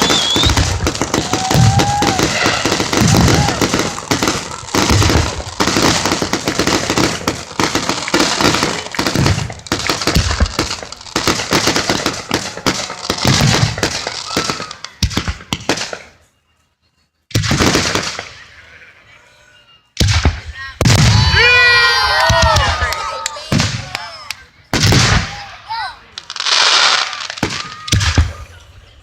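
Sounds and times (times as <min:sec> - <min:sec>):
deep firework booms: 0:00.0 - 0:14.4
fireworks crackling and popping: 0:00.0 - 0:16.3, 0:17.3 - 0:18.6, 0:20.0 - 0:29.0.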